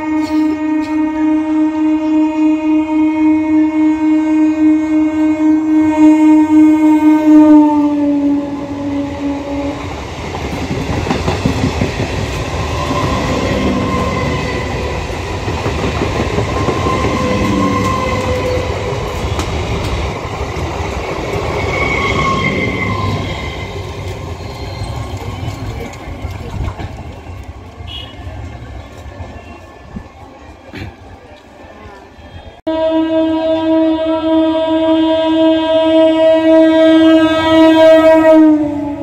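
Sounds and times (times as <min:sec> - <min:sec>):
train horn: 0:00.0 - 0:10.1, 0:12.6 - 0:15.1, 0:16.6 - 0:19.6, 0:21.5 - 0:23.9, 0:27.9 - 0:28.4, 0:32.2 - 0:39.0
train wheels clattering: 0:09.8 - 0:29.5
high squealing tones: 0:21.2 - 0:25.8.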